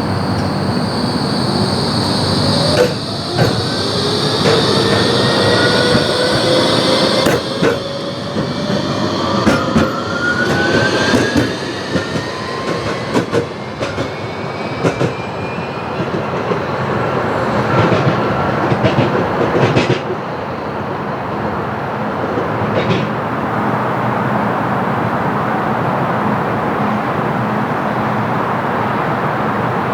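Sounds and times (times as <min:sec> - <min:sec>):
tram motor whine: 0:00.0 - 0:22.2
steel wheels rumbling on rail: 0:00.0 - 0:29.9.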